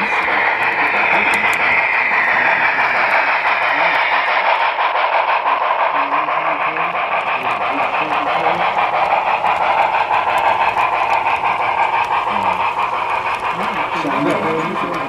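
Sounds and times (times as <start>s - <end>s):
faint voices: 0.0s - 4.8s, 5.7s - 9.0s, 12.2s - 15.0s
fast regular rail clicking: 0.0s - 15.0s
passenger train running: 0.0s - 15.0s.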